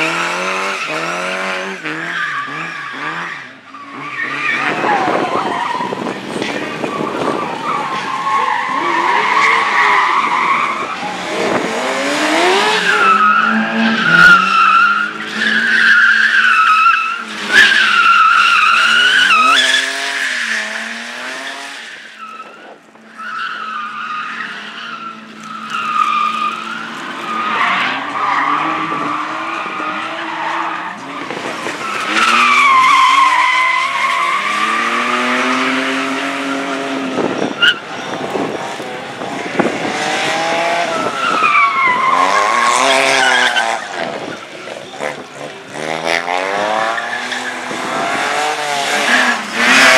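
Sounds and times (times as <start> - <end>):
race car engine revving: 0.0 - 21.9, 23.8 - 49.9
tyres squealing: 21.9 - 35.3.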